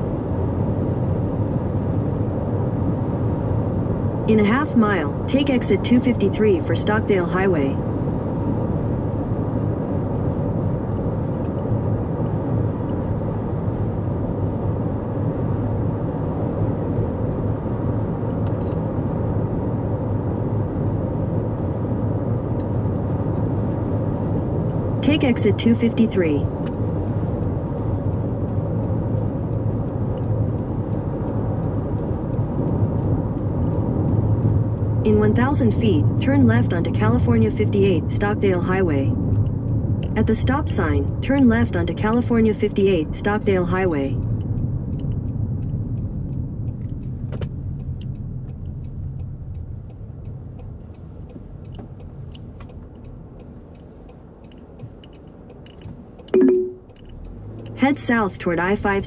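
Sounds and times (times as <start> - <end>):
drivetrain hum: 0.0 - 15.0, 22.4 - 55.4
car cabin road rumble: 0.0 - 59.0
faint ticks: 44.2 - 57.8.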